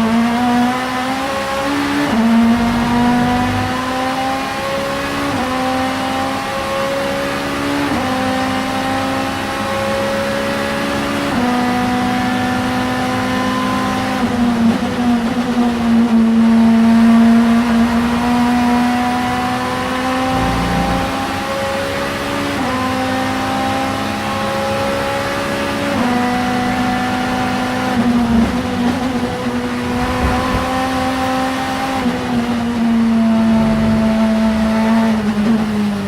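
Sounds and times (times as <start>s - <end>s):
race car engine accelerating: 0.0s - 36.0s.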